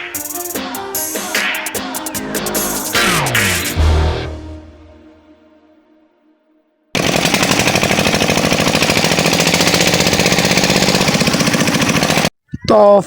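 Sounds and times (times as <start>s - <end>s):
engine chugging: 7.0s - 12.3s.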